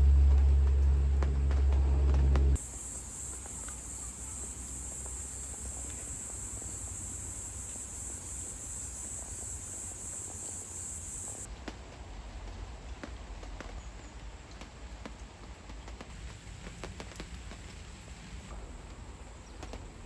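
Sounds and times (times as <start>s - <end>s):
loud low rumble: 0.0s - 2.6s
insects chirring: 2.5s - 11.5s.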